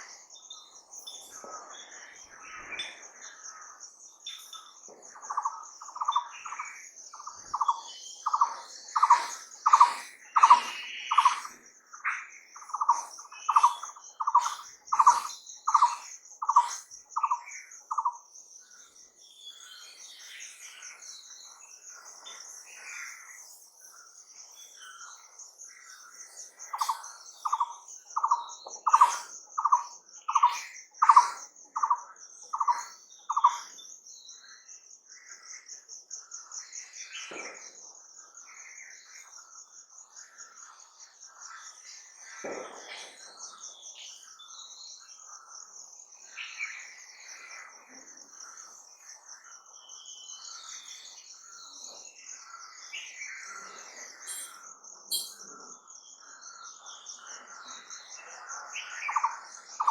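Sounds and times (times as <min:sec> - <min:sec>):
pulsing insect trill: 0:00.0 - 0:59.9
soft scattered bird calls: 0:00.0 - 0:59.9
bird calling evenly spaced notes: 0:02.1 - 0:37.0, 0:54.1 - 0:55.6, 0:58.8 - 0:59.9.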